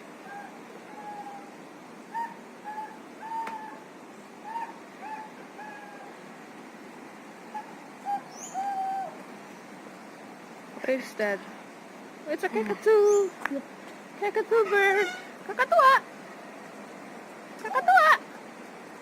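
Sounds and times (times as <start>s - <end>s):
steady background hiss: 0.0s - 19.0s
cockatoo hooting calls: 0.2s - 6.2s, 7.5s - 9.2s, 14.6s - 15.8s.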